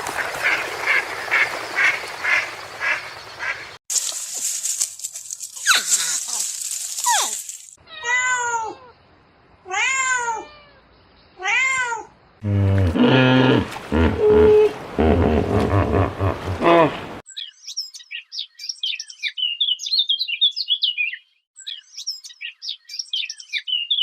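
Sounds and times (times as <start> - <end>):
animal calling: 12.4 - 17.1.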